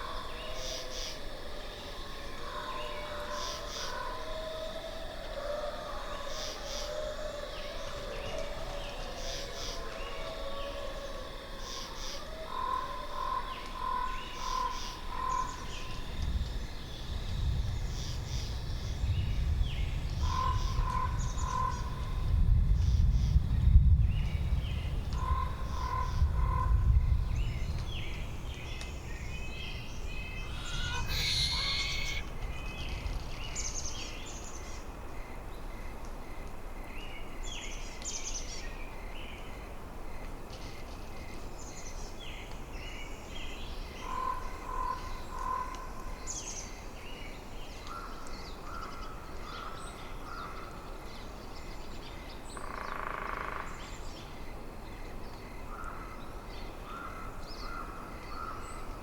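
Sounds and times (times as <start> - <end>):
wind gusting in trees: 0.0 - 59.0
small birds chirping: 29.7 - 32.3.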